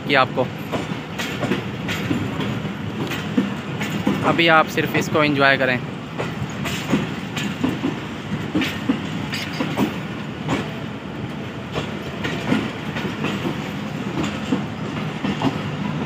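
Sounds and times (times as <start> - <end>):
train wheels rumbling: 0.0 - 16.0
wheels clacking over rail joints: 0.5 - 16.0.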